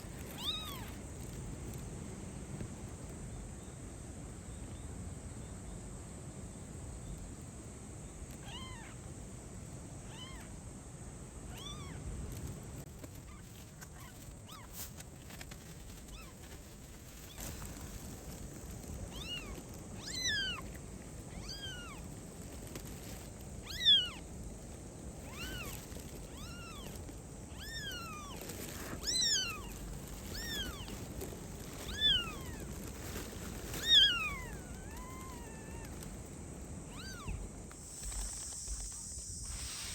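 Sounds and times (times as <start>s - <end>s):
kitten meowing: 0.4s - 1.0s, 8.4s - 9.0s, 10.1s - 10.5s, 11.5s - 12.0s, 14.0s - 14.8s, 19.1s - 20.7s, 21.3s - 22.0s, 23.6s - 24.2s, 25.2s - 31.1s, 31.8s - 32.7s, 33.8s - 36.0s, 36.9s - 37.4s.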